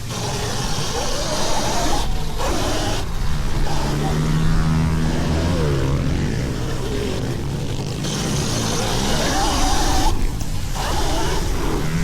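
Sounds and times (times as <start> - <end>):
pit bike engine passing: 0.0 - 12.0.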